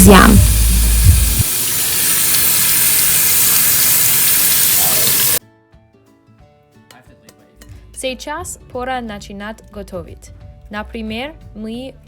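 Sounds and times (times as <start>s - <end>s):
tap water running into a sink: 0.0s - 5.4s
faint background music: 5.4s - 12.0s.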